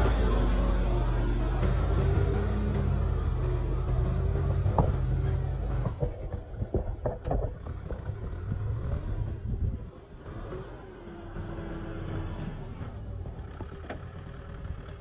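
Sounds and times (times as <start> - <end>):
tractor diesel engine drone: 0.0 - 15.0
irregular knocks and clatter: 1.4 - 9.4.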